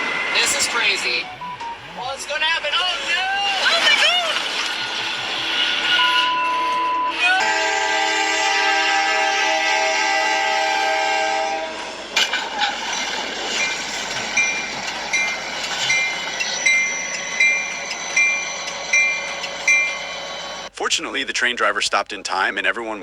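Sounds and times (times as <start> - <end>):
train rumbling: 0.0 - 21.4
level crossing bell ringing: 1.2 - 3.1, 6.0 - 7.3, 13.5 - 20.7
train horn chord: 6.0 - 12.0.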